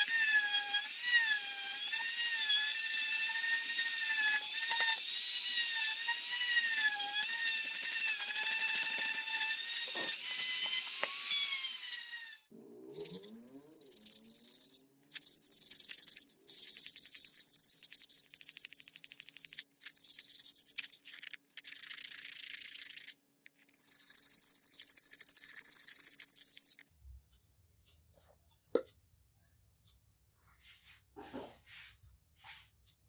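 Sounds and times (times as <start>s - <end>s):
hand scraping and scratching: 13.7s - 26.8s.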